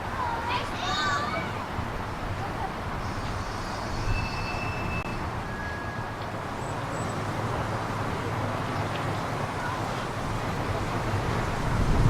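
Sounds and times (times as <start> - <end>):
steam train rumbling: 0.0 - 12.0
thin high squeals: 3.0 - 6.4.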